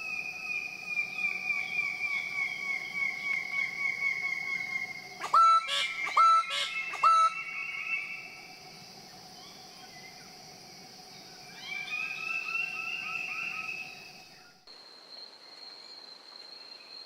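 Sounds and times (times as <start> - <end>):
high insect drone: 0.0 - 17.0
birds calling: 0.9 - 8.3
loud bird call: 5.2 - 8.3.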